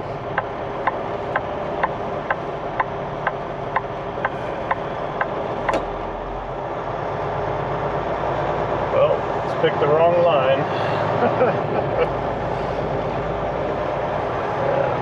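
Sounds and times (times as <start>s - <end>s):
truck diesel engine rumbling: 0.0s - 15.0s
turn signal flasher clicking: 0.3s - 5.9s.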